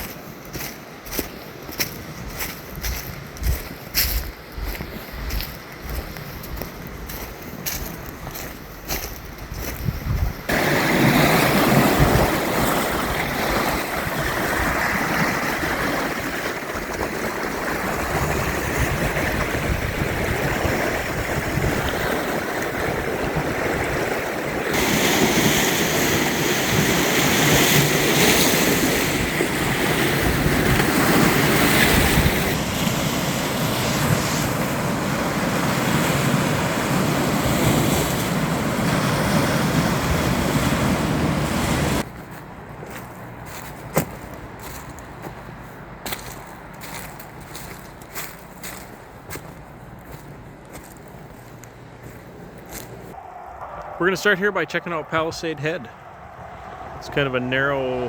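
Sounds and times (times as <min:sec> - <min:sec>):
wind buffeting microphone: 0:00.0 - 0:42.1
waves washing onto shore: 0:10.4 - 0:42.1.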